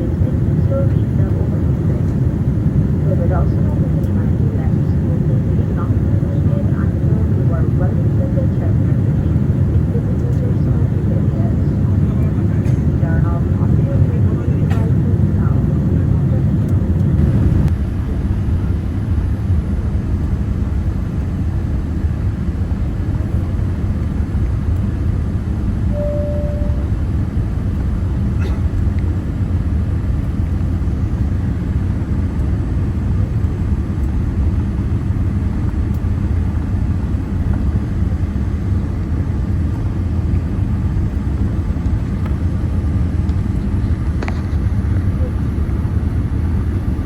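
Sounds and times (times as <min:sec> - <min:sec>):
airliner cabin rumble: 0:00.0 - 0:47.0
cabin chime tone: 0:25.9 - 0:27.0.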